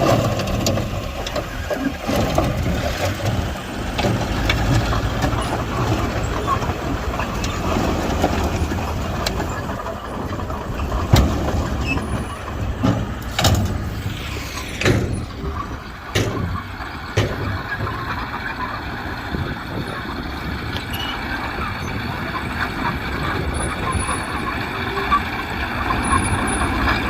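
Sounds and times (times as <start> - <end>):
diesel engine running: 0.0 - 27.0
sharp knocks and clanks: 10.2 - 14.1, 14.7 - 18.2.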